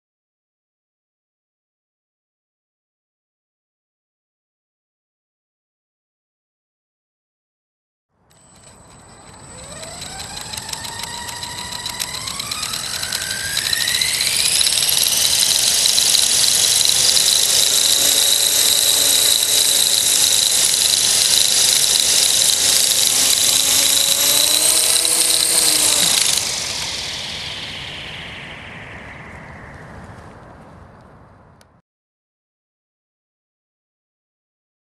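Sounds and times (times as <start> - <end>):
model helicopter whine: 8.3 - 30.2
wavering lower drone: 8.4 - 31.5.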